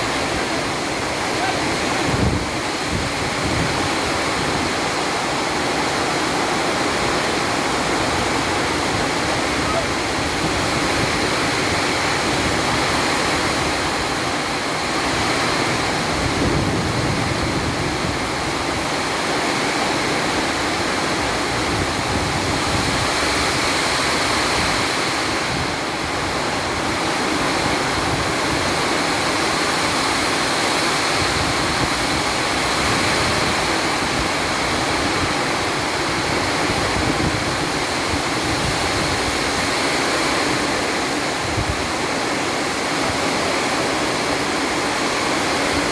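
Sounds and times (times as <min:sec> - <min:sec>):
heavy rain pouring: 0:00.0 - 0:45.9.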